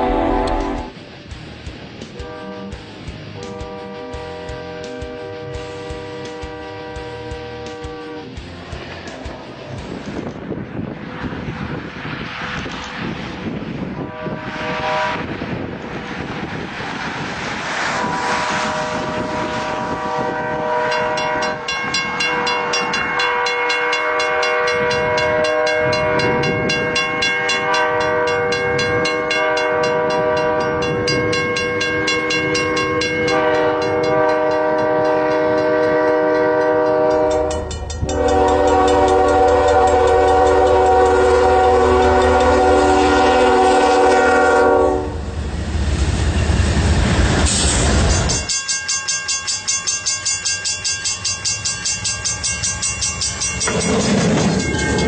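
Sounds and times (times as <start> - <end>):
train horn blast: 0.0 - 1.0, 2.2 - 2.8, 3.4 - 8.3, 14.0 - 15.5, 17.9 - 45.3
train wheel noise: 0.0 - 55.0.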